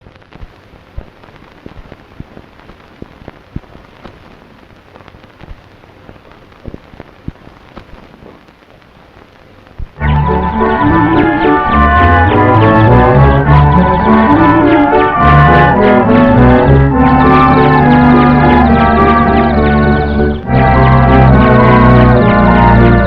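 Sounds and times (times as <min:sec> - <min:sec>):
film soundtrack hiss and crackles: 0:00.0 - 0:23.0
orchestral cartoon music: 0:10.0 - 0:23.0.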